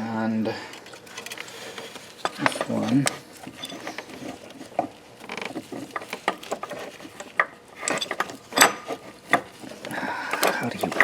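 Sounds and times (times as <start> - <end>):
metal parts clicking and scraping: 0.9 - 11.0.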